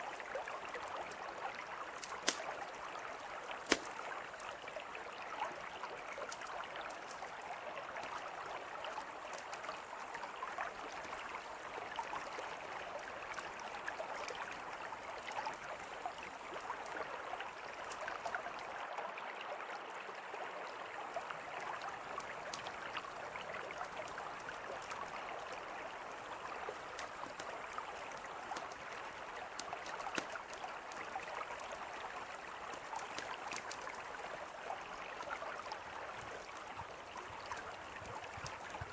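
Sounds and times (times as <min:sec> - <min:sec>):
river flowing: 0:00.0 - 0:38.9
campfire crackling: 0:00.2 - 0:04.7, 0:26.6 - 0:34.3.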